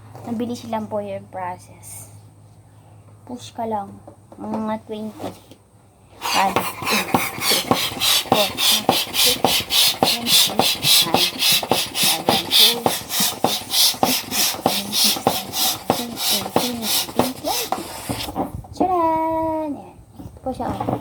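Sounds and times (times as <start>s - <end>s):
balloon pump air hissing: 6.2s - 18.5s.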